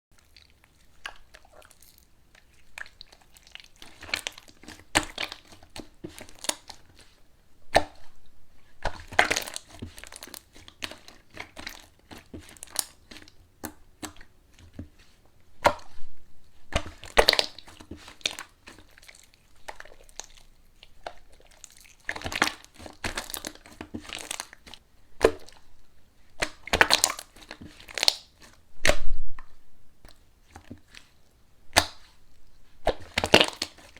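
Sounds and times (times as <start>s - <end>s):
slime crackling and popping: 0.8s - 6.9s, 8.8s - 14.2s, 16.7s - 25.6s, 26.4s - 29.1s, 31.8s - 32.2s, 32.8s - 33.9s.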